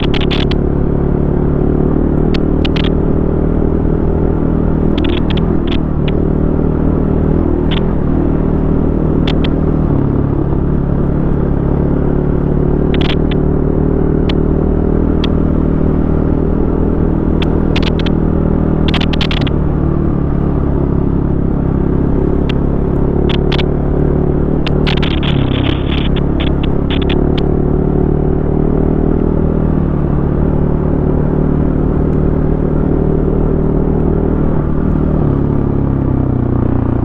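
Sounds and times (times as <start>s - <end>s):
sharp clicks and knocks: 0.0s - 0.6s, 2.2s - 3.0s, 4.8s - 6.2s, 7.6s - 8.1s, 9.2s - 9.8s, 12.9s - 13.4s, 17.3s - 18.2s, 18.8s - 19.6s, 22.4s - 27.6s
dirt bike engine running: 0.0s - 1.6s, 4.8s - 6.3s, 7.4s - 14.5s, 17.3s - 28.2s.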